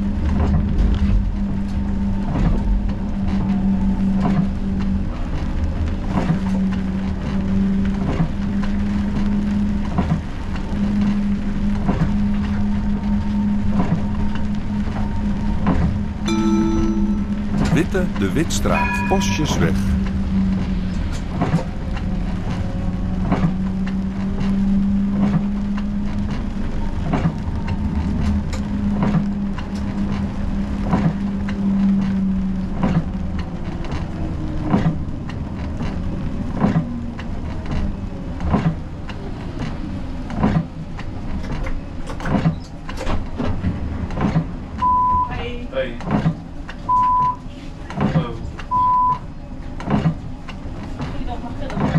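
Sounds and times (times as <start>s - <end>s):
tram hum: 15.0s - 24.4s.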